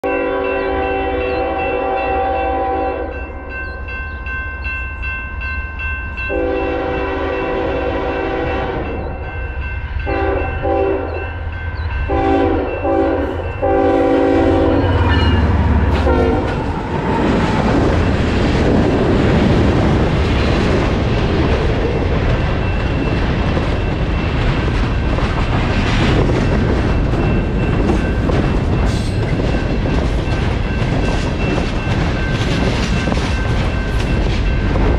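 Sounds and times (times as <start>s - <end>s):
locomotive horn blasts: 0.0s - 3.3s, 6.3s - 9.2s, 10.0s - 11.3s, 12.1s - 16.6s
crossing signal bell ringing: 0.0s - 19.4s, 21.1s - 25.3s, 26.3s - 34.9s
locomotive engine rumble: 6.4s - 34.9s.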